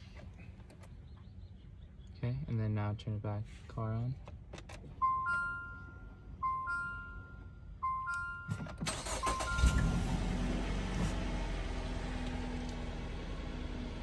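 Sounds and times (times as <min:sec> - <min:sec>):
car engine cranking and idling: 0:03.8 - 0:14.0
two-note warning chime: 0:05.0 - 0:10.2.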